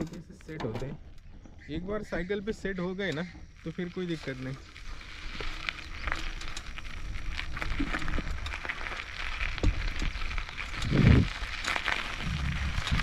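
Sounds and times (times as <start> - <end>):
bicycle crackles and clicks: 0.0 - 1.7, 2.4 - 13.0
low rumble: 12.0 - 13.0.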